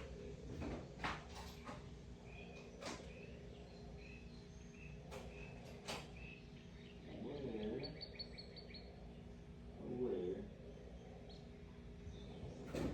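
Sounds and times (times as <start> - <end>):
bird chirping and trilling: 2.3 - 9.0.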